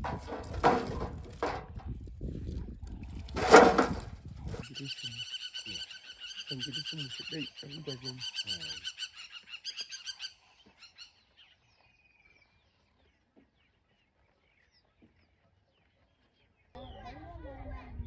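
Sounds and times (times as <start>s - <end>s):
faint bird chirps: 4.6s - 17.4s.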